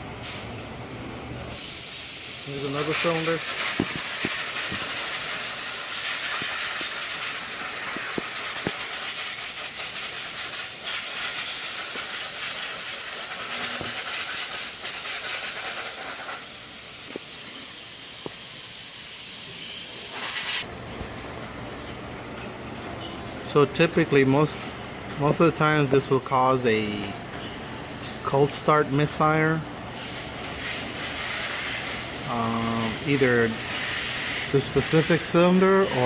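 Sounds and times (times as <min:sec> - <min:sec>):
loud steady hiss: 0:01.5 - 0:20.7, 0:29.9 - 0:36.0.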